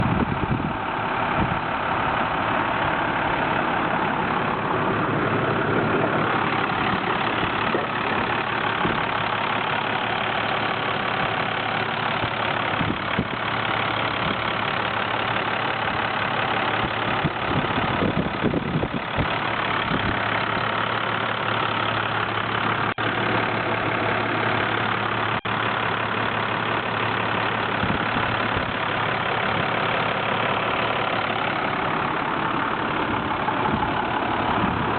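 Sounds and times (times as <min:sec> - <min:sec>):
diesel truck engine idling: 0:00.0 - 0:34.9.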